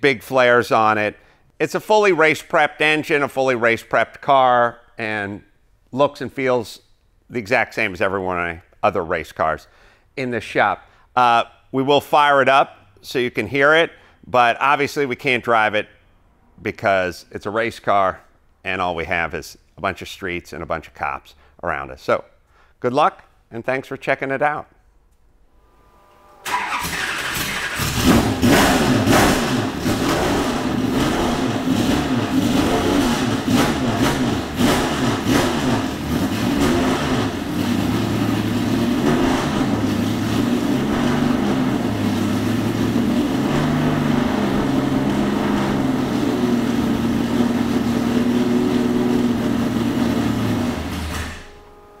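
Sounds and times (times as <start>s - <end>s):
car engine revving and idling: 25.6s - 52.0s.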